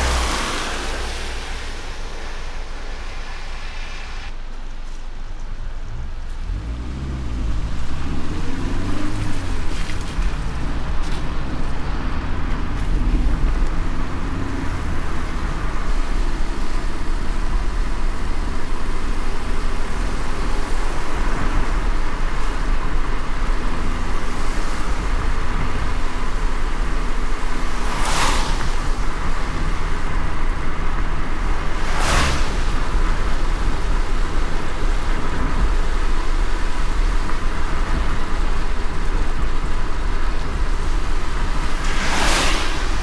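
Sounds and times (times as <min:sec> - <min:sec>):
brief whoosh: 0:00.0 - 0:06.1, 0:31.6 - 0:33.8, 0:41.6 - 0:43.0
tyre and road noise: 0:00.0 - 0:43.0.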